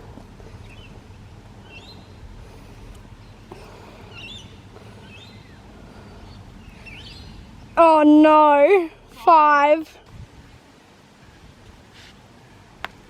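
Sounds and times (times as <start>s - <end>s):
low background rumble: 0.0s - 13.0s
small birds chirping: 0.3s - 8.8s.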